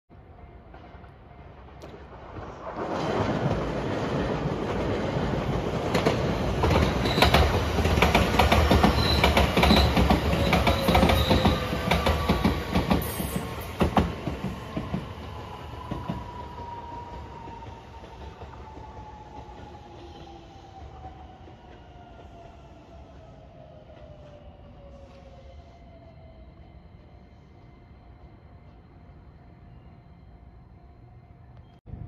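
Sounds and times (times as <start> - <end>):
train wheels clacking over rail joints: 5.6 - 15.1.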